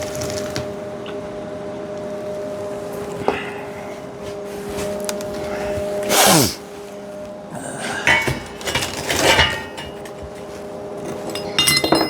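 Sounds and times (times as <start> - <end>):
metal clanks and clinks: 7.9 - 12.0
metal scraping: 7.9 - 12.0.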